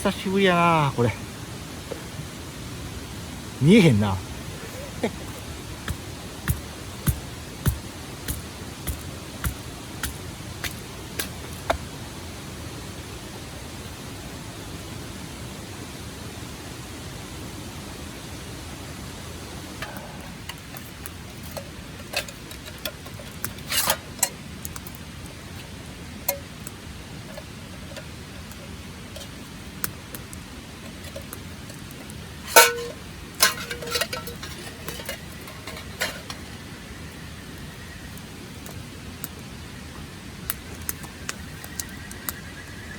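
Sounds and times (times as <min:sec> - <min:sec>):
steady background hiss: 0:00.0 - 0:42.9
camping gear clicks and knocks: 0:04.7 - 0:12.0, 0:19.8 - 0:25.7, 0:26.3 - 0:36.6.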